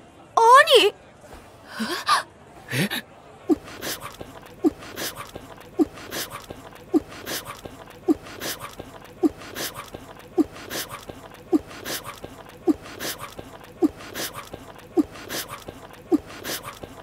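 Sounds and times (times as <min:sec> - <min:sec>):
wet munching: 0:03.5 - 0:17.0.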